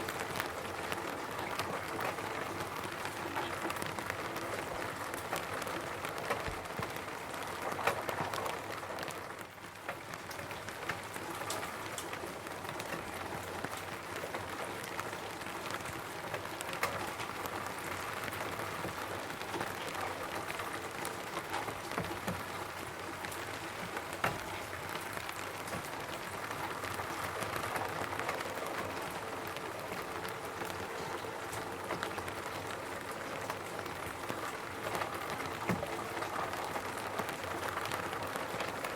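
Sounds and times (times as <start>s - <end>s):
rain falling on a roof: 0.0s - 38.9s.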